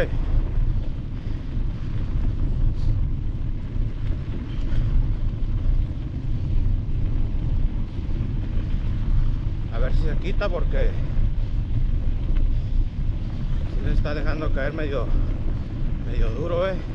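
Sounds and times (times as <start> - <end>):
tyres on gravel road: 0.0 - 16.9
wind buffeting microphone: 0.0 - 16.9
faint ticks: 11.6 - 13.4.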